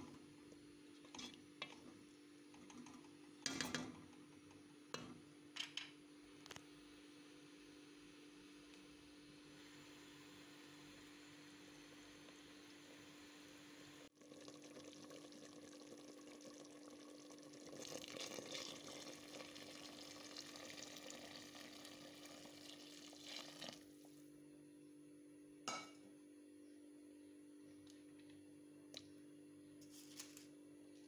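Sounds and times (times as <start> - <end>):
chicken sizzling in a pot: 9.5 - 24.3
water poured into hot pot: 14.1 - 24.0
pot bubbling: 14.1 - 24.2.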